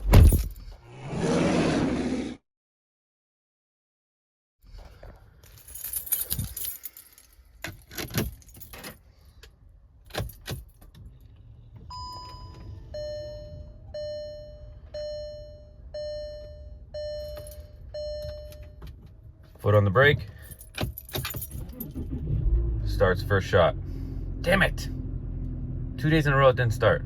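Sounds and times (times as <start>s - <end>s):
keys jangling: 4.8s - 9.0s, 10.0s - 11.0s, 20.3s - 22.0s
short beep: 11.9s - 18.8s
vehicle warning chime: 11.9s - 21.7s.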